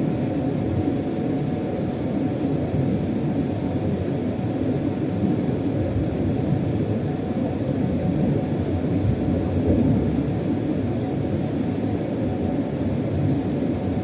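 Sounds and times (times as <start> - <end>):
freight train rumble inside cab: 0.0 - 14.0.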